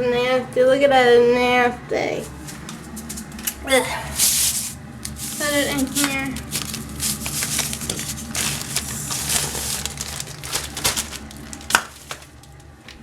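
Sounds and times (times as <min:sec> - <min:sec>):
plastic bag crinkling: 0:04.6 - 0:13.0.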